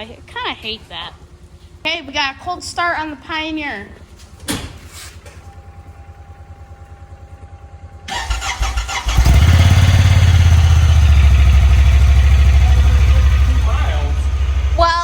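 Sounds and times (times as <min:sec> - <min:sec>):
engine idling: 0:05.2 - 0:15.0
starter motor cranking: 0:08.1 - 0:15.0.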